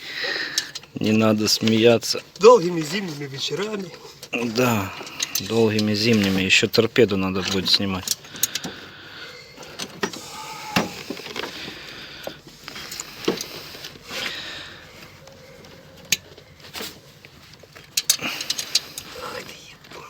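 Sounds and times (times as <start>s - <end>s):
hand tools clicking and knocking: 0.0s - 20.0s.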